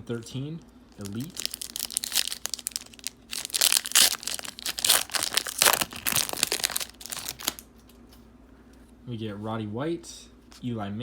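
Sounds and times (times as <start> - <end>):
wrapper being torn and crinkled: 0.9 - 7.7.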